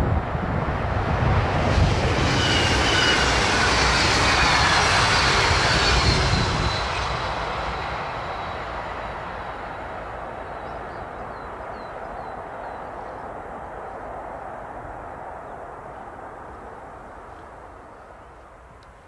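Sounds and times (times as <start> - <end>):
train wheels rushing on rail: 0.0 - 15.8
faint high whine: 1.7 - 19.0.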